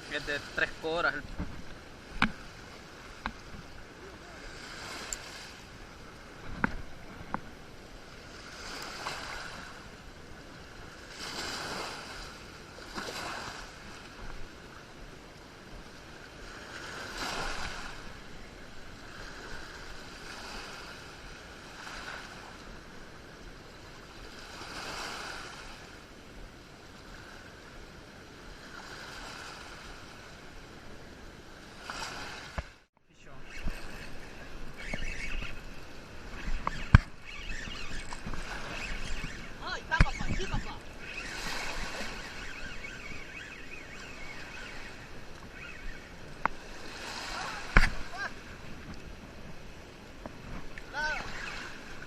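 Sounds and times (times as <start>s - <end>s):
surf hiss: 0.0s - 10.1s, 33.2s - 52.0s
waves washing onto shore: 0.0s - 52.0s.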